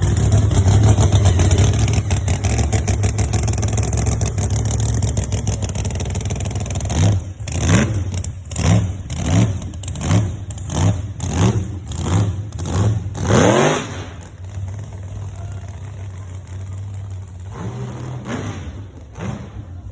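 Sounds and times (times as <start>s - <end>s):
engine revving from idle: 0.0s - 14.8s.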